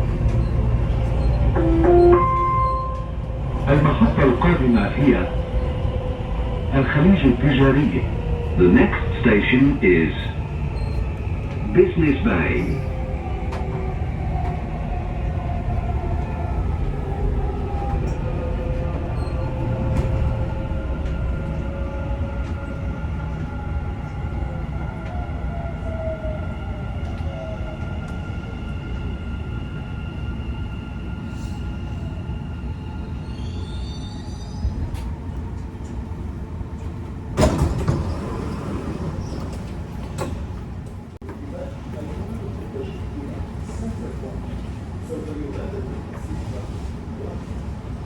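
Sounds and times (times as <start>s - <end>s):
train rumbling: 0.0s - 48.0s
sliding doors opening: 37.3s - 41.0s.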